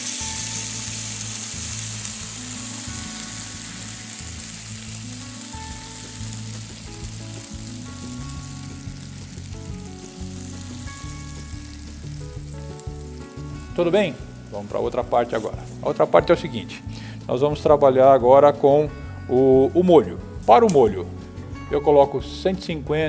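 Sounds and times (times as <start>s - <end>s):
liquid sizzling in hot pan: 0.0s - 15.9s
background music: 0.0s - 23.0s.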